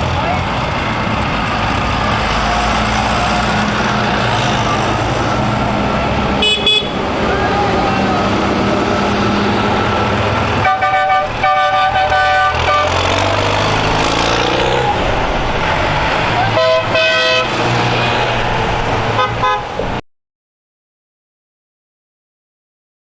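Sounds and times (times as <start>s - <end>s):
tractor engines running: 0.0s - 20.0s
horns tooting: 2.1s - 15.1s, 15.7s - 20.0s.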